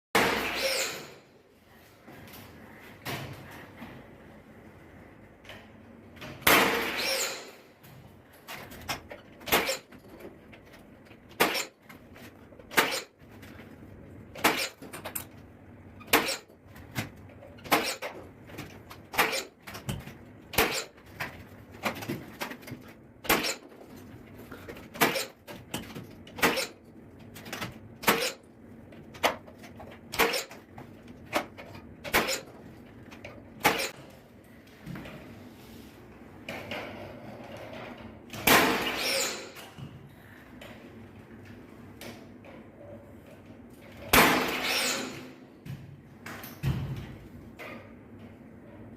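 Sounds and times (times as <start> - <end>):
nail gun shots: 6.4 - 7.6, 11.3 - 11.7, 30.1 - 30.5, 33.6 - 33.9, 38.4 - 39.6, 44.1 - 45.3.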